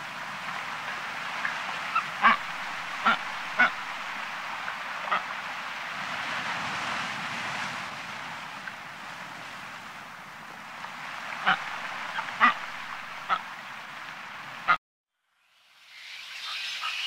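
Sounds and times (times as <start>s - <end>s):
background hiss: 15.4s - 17.0s.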